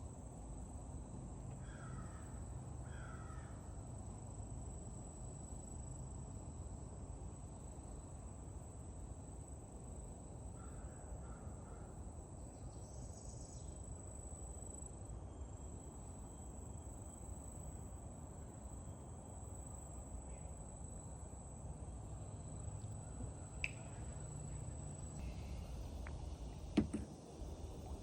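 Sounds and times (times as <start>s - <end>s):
insects chirring: 0.6s - 28.0s
small click: 23.6s - 23.8s.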